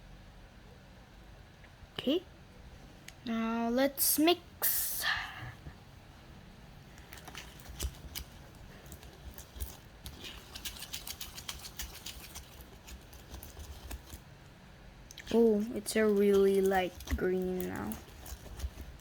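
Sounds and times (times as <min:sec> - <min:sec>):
tool stirring slime: 0:07.0 - 0:14.3, 0:15.1 - 0:19.0.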